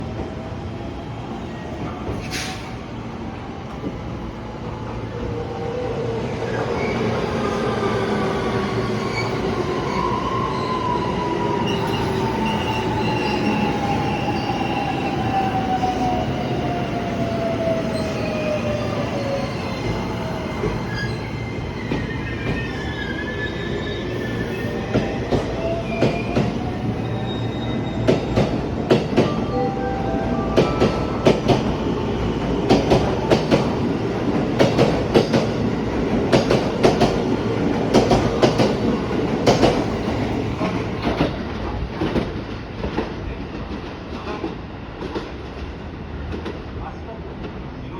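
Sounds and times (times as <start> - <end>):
electric train whine: 6.0 - 34.3.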